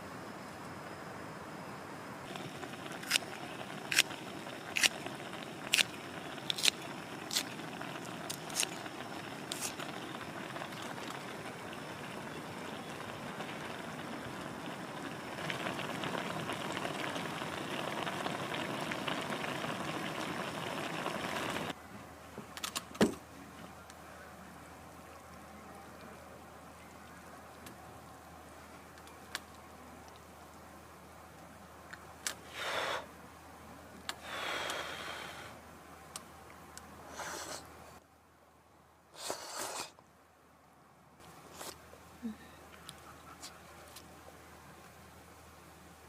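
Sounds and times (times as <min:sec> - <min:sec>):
watery hiss: 0:32.4 - 0:33.2, 0:34.2 - 0:35.6, 0:37.1 - 0:37.7, 0:39.2 - 0:40.0.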